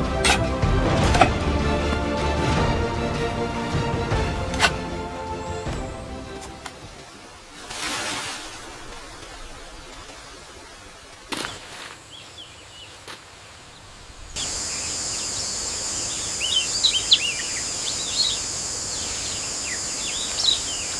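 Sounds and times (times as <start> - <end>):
birds chirping: 9.3 - 20.9
high-pitched insect drone: 14.4 - 20.9.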